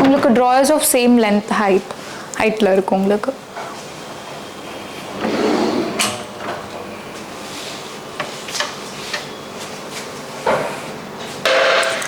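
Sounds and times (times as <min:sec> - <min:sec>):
drawers sliding on runners: 0:05.1 - 0:06.6.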